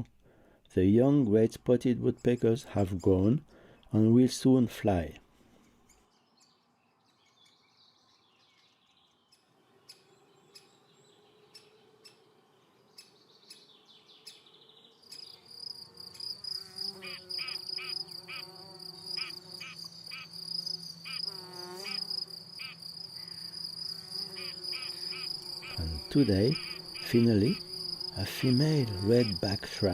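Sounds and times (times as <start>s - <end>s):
cricket trilling: 15.0s - 29.9s
faint chirps and clicks: 19.7s - 20.1s.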